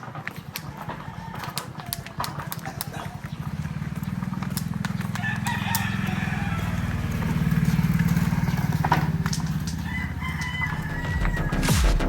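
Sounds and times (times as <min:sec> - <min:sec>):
small motorcycle engine running: 0:00.0 - 0:12.0
rooster crowing: 0:00.4 - 0:02.6, 0:05.0 - 0:12.0.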